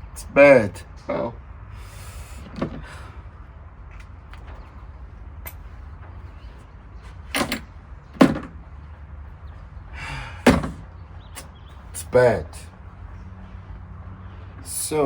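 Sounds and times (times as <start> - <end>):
tools and parts knocking: 7.3 - 8.6.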